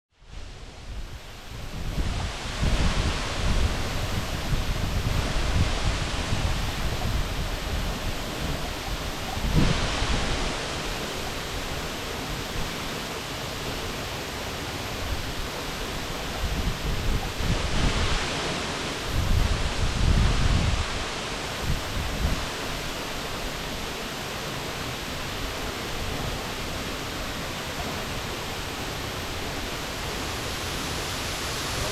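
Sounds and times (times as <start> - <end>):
wind rumbling on microphone: 0.2 - 13.0, 14.8 - 23.9
waterfall rushing: 0.4 - 31.9.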